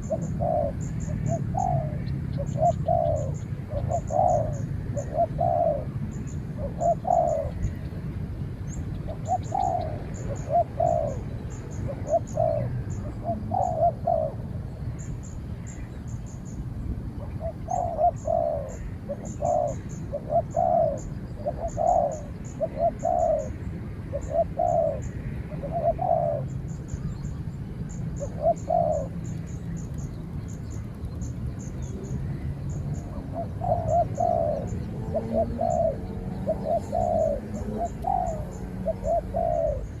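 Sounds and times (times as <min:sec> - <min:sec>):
doves cooing: 0:00.0 - 0:16.4, 0:17.2 - 0:40.0
small bird chirping: 0:24.2 - 0:40.0.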